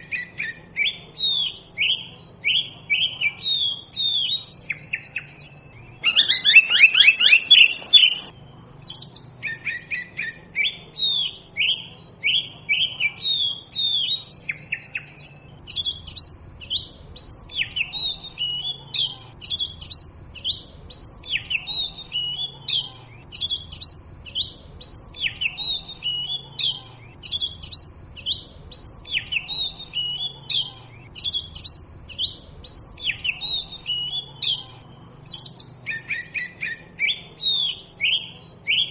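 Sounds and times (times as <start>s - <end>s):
magpie robin singing: 0.0s - 38.9s.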